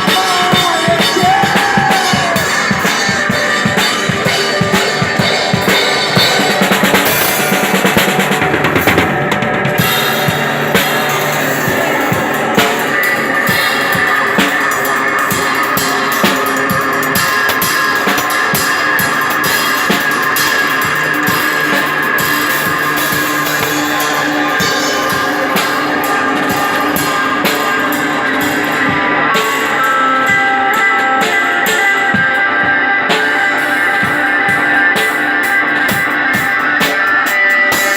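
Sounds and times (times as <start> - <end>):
steady drumming: 0.0 - 37.9
sustained electric guitar chords: 0.0 - 37.9.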